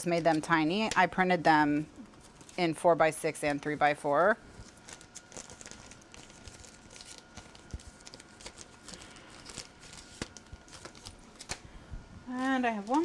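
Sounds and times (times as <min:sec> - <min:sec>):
paper rustling: 0:04.5 - 0:11.7.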